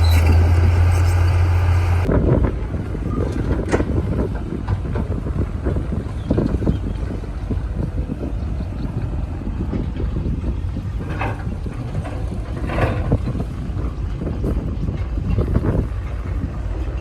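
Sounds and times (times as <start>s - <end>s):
high-pitched engine rasps: 0.0s - 2.1s
bulldozer diesel engine rumbling: 0.0s - 17.0s.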